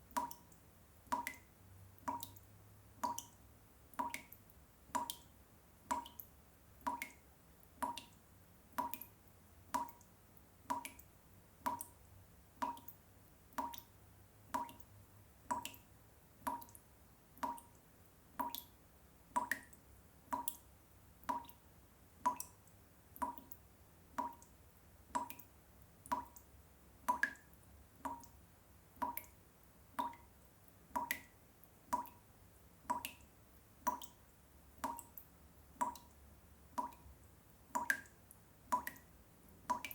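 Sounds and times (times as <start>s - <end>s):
water drops plinking into water: 0.1s - 13.9s, 14.5s - 14.9s, 15.5s - 16.8s, 17.4s - 17.8s, 18.4s - 21.6s, 22.2s - 23.6s, 24.2s - 24.5s, 25.1s - 28.4s, 29.0s - 30.3s, 31.0s - 32.2s, 32.8s - 34.2s, 34.8s - 37.1s, 37.7s - 39.9s.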